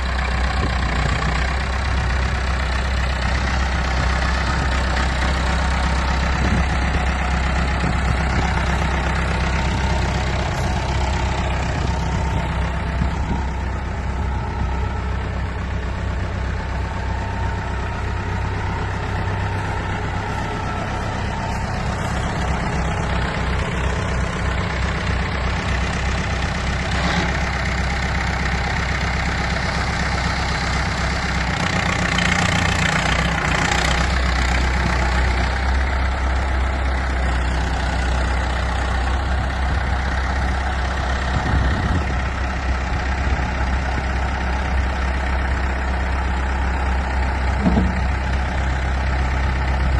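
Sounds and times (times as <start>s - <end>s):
diesel tractor engine idling: 0.0s - 49.9s.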